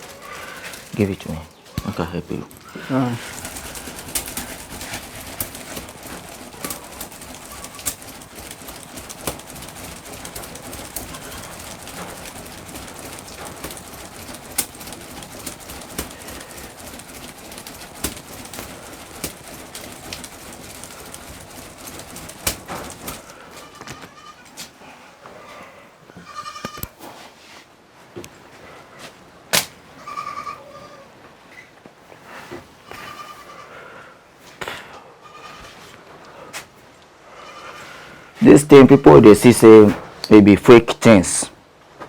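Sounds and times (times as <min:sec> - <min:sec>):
fire crackling and popping: 0:00.0 - 0:23.4.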